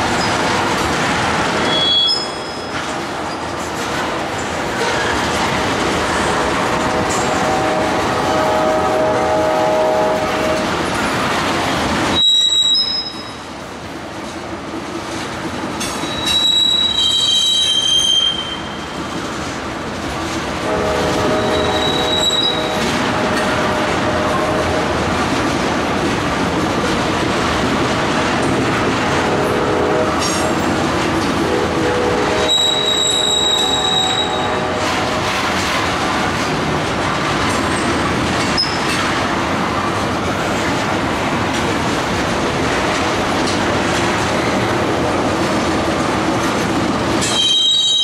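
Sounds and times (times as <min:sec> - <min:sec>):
freight train rumbling on rails: 0:00.0 - 0:48.0
high wheel squeals: 0:01.6 - 0:03.4, 0:12.2 - 0:13.4, 0:16.0 - 0:18.8, 0:21.4 - 0:22.8, 0:32.5 - 0:34.5, 0:47.2 - 0:48.0.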